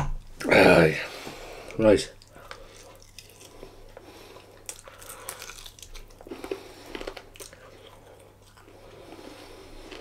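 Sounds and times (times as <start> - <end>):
person chewing chicken: 2.2 - 10.0.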